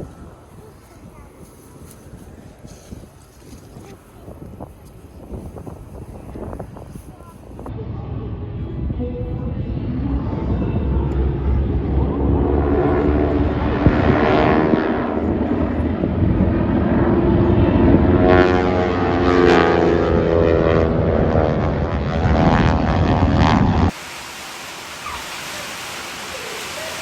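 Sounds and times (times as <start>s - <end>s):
propeller airplane flyby: 3.8s - 27.0s
steady hiss: 23.9s - 27.0s.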